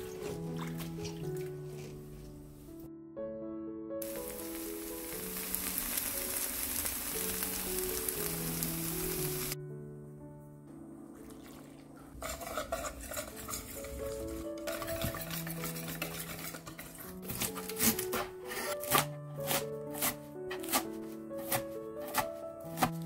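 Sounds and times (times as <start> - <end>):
batter sizzling in oil: 4.0 - 9.6
scraping and clinking in metal bowl: 12.1 - 18.0.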